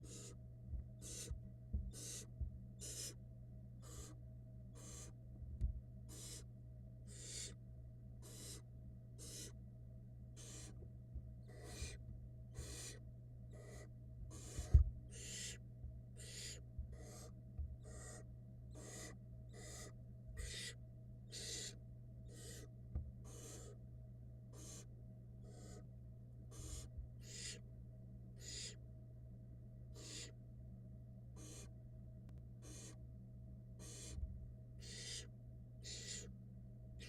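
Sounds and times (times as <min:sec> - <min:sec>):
owl nestlings hissing begging calls: 0:00.0 - 0:00.4, 0:01.0 - 0:03.2, 0:03.8 - 0:04.2, 0:04.8 - 0:05.2, 0:06.1 - 0:06.5, 0:07.1 - 0:07.6, 0:08.2 - 0:09.6, 0:10.4 - 0:10.8, 0:11.4 - 0:12.0, 0:12.6 - 0:15.6, 0:16.2 - 0:23.8, 0:24.5 - 0:25.8, 0:26.5 - 0:27.6, 0:28.4 - 0:28.8, 0:29.9 - 0:30.4, 0:31.4 - 0:31.7, 0:32.6 - 0:33.0, 0:33.8 - 0:34.2, 0:34.8 - 0:36.3.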